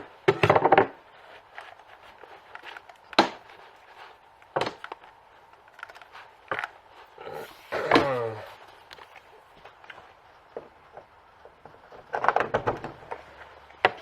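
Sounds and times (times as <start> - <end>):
handling knocks and clicks: 0.0 - 7.2.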